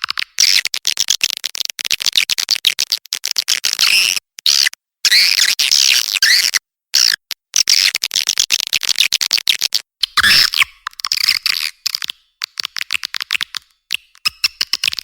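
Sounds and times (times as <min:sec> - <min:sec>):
swiftlets twittering and chirping: 0:10.0 - 0:12.1.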